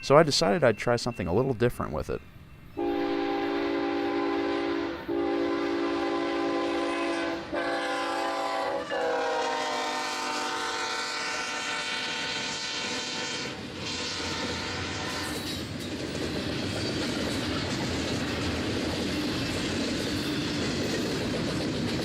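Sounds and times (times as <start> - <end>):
train rumbling and clacking: 0.0 - 22.0
locomotive air horn blasts: 2.8 - 15.4.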